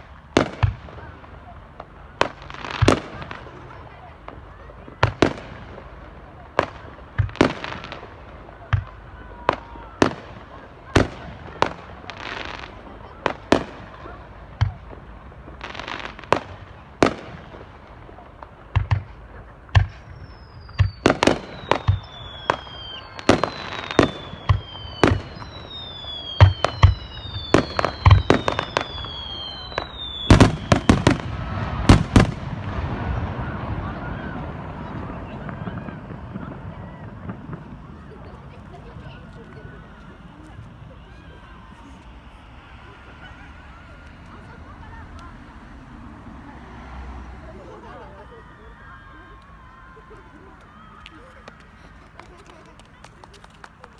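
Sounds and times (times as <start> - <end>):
fireworks bursting with bangs: 0.0 - 53.9
falling firework whistles: 19.8 - 52.3.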